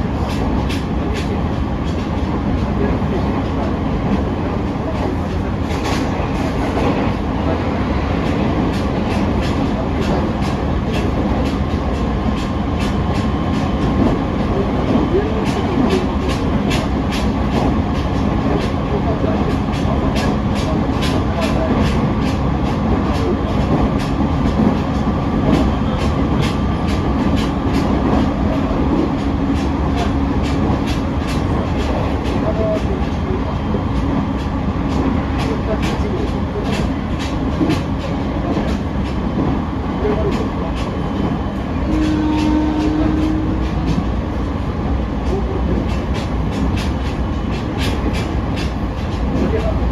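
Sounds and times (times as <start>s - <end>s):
train wheels rumbling: 0.0s - 49.9s
wheels clicking over rail joints: 8.2s - 49.9s.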